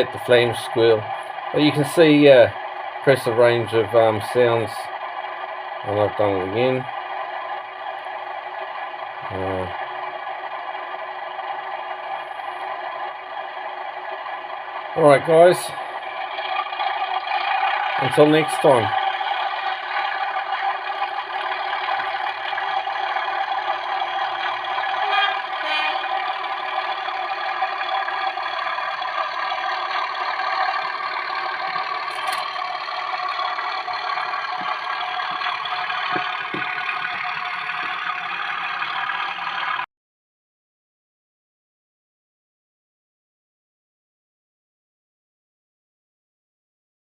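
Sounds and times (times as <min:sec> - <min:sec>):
diesel engine idling through small speaker: 0:00.0 - 0:39.9.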